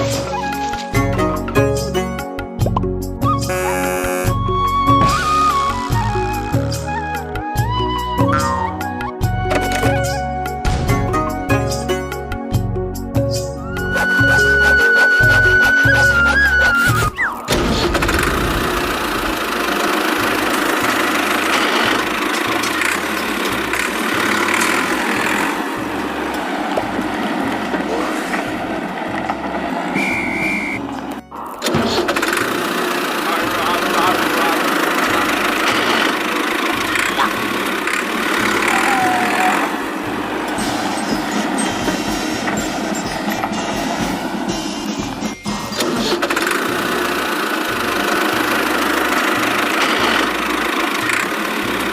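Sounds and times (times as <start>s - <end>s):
toy tractor engine drone: 13.6s - 51.9s.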